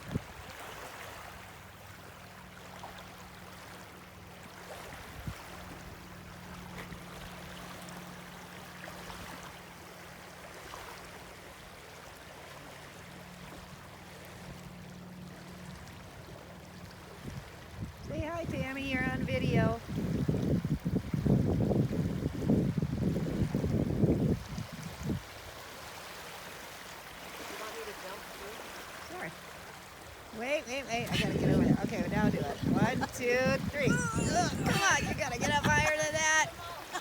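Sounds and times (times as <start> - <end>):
running water: 24.1 - 37.0.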